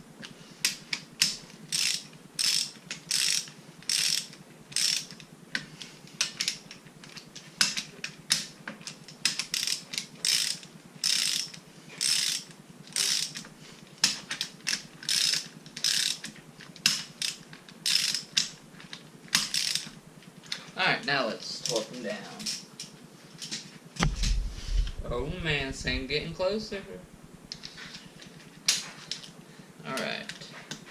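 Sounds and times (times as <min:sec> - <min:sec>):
ratchet wrench clicking: 0:00.6 - 0:05.2, 0:07.6 - 0:13.4, 0:14.0 - 0:18.5, 0:19.3 - 0:19.9.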